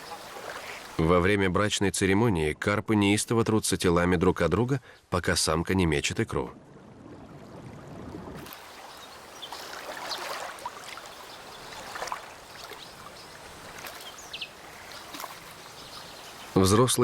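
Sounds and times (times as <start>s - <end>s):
watery hiss: 0.0s - 1.0s
fish splashing in water: 8.4s - 16.6s.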